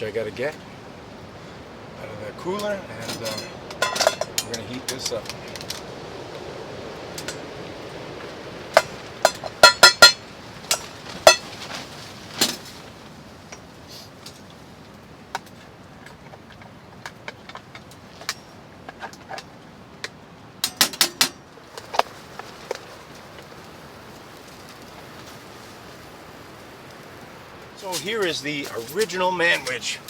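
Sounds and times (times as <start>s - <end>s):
items clinking in a cooler: 2.6s - 5.8s, 8.8s - 12.8s.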